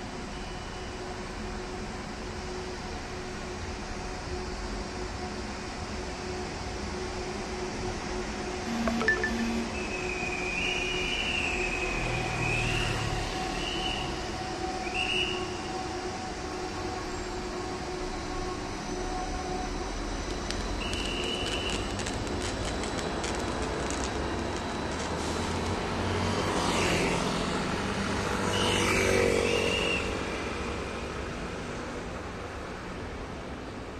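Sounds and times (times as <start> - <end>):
train rolling rumble: 15.6 - 28.3.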